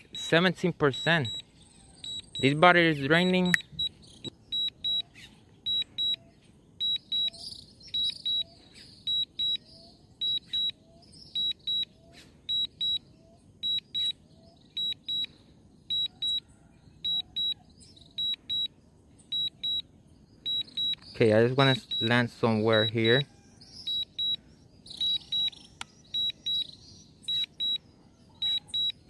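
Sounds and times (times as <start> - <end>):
high-pitched double beeps: 0.0 - 5.0, 6.8 - 7.4, 20.5 - 23.2, 23.8 - 27.8.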